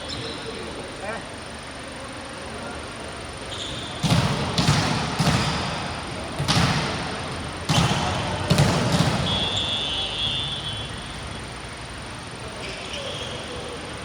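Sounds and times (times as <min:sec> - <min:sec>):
volleyball being struck: 0:03.8 - 0:10.5
referee's whistle blast: 0:07.7 - 0:11.1.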